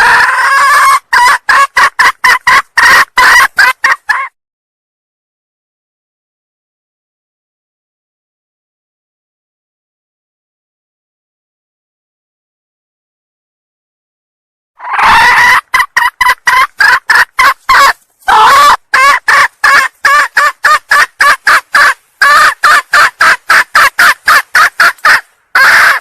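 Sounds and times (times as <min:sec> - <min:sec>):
hen junglefowl calling: 0:00.0 - 0:04.4, 0:14.8 - 0:26.0.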